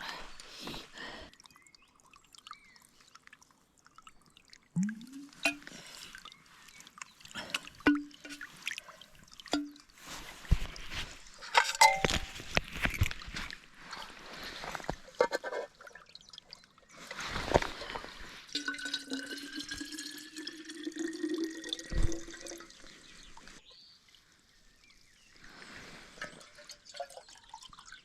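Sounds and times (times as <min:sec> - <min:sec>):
water pouring into a container: 0:01.3 - 0:13.1, 0:15.7 - 0:23.6, 0:26.1 - 0:28.0
gurgling blips: 0:04.6 - 0:06.1
container knocks and clinks: 0:10.5 - 0:13.3.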